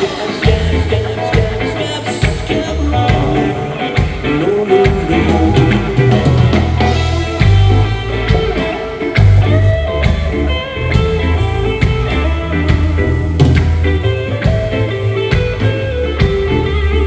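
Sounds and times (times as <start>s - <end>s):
electric guitar: 0.0s - 17.0s
heavy bass line: 0.0s - 17.0s
drum hits: 1.4s - 16.7s.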